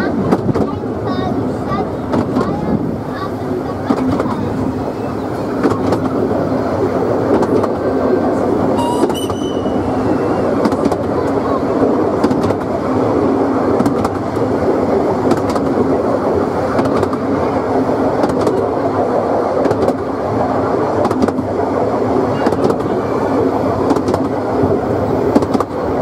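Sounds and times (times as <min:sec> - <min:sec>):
wheels rumbling on rails: 0:00.0 - 0:26.0
sharp track clicks: 0:03.8 - 0:04.6, 0:05.6 - 0:06.4, 0:07.3 - 0:07.9, 0:08.6 - 0:12.8, 0:13.8 - 0:14.5, 0:15.2 - 0:15.8, 0:18.2 - 0:18.7, 0:19.6 - 0:20.1, 0:23.8 - 0:24.4, 0:25.3 - 0:25.8.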